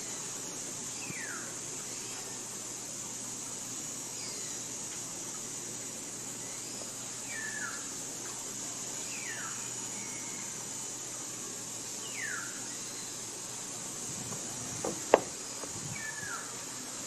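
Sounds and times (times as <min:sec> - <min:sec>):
forest ambience hiss: 0:00.0 - 0:17.0.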